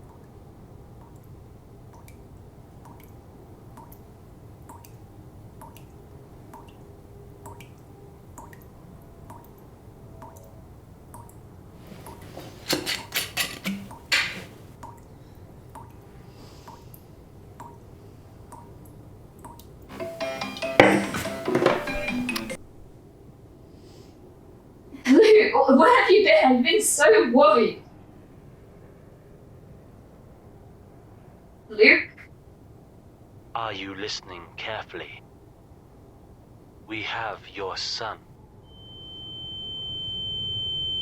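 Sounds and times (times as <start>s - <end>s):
water dripping: 0.0s - 11.4s, 13.1s - 20.0s
clattering knocks: 11.9s - 14.7s, 19.9s - 22.6s.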